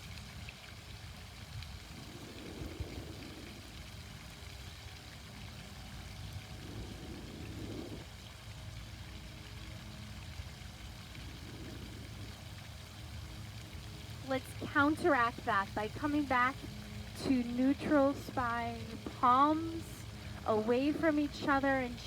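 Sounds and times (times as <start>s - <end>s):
water fountain splashing: 0.0s - 22.0s.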